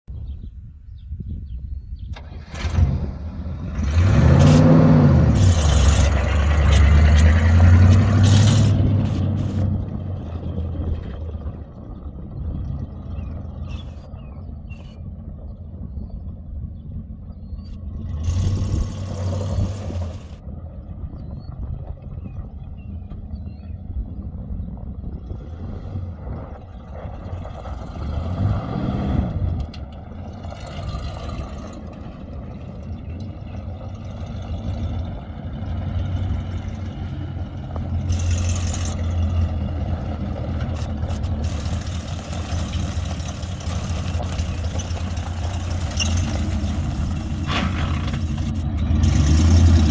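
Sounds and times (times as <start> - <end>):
pickup engine revving: 2.2 - 11.6, 17.8 - 20.4, 25.2 - 49.9.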